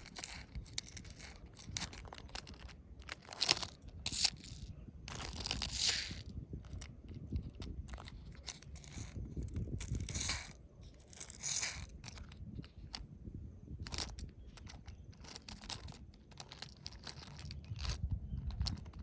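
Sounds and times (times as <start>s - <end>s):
scratchy rustling: 0.0s - 13.0s, 13.9s - 19.0s.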